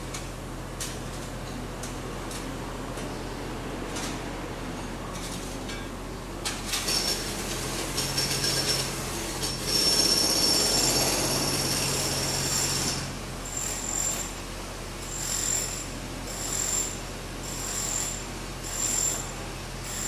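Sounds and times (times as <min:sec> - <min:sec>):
pneumatic hammer running: 0:06.4 - 0:14.4
high metallic ringing squeal: 0:09.5 - 0:14.4, 0:15.0 - 0:20.0.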